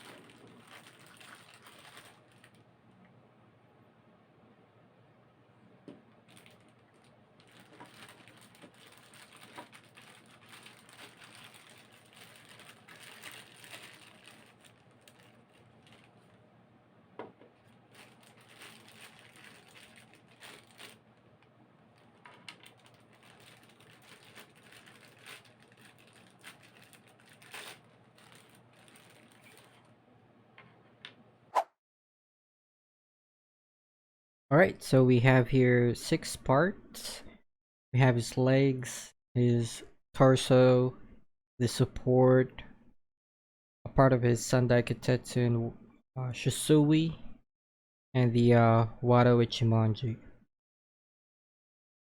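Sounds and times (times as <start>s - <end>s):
plastic packaging crinkling: 0.0s - 2.6s, 6.2s - 16.4s, 17.4s - 29.9s.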